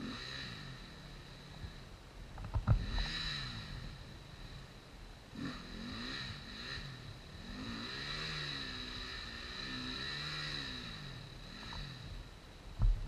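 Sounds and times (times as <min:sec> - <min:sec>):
distant motorcycle engine revving: 0:00.0 - 0:13.0
steady high-pitched whine: 0:00.0 - 0:13.0.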